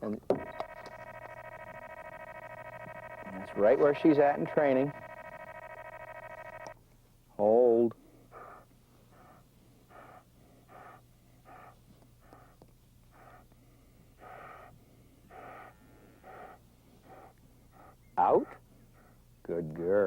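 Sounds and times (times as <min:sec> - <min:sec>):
dog breathing hard through nose: 0:08.2 - 0:18.0.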